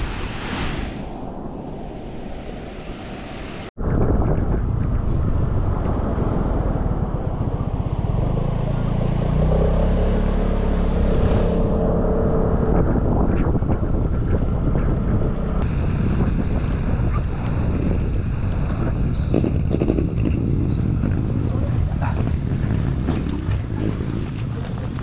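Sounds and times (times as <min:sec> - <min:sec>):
wind buffeting microphone: 0:00.0 - 0:25.0
scooter engine drone: 0:05.5 - 0:25.0.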